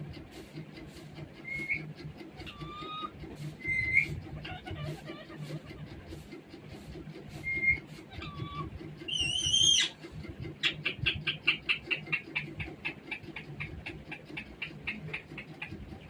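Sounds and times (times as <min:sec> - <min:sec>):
parrot chirps: 0:09.1 - 0:10.0
parrot whistling and calling: 0:09.1 - 0:10.0.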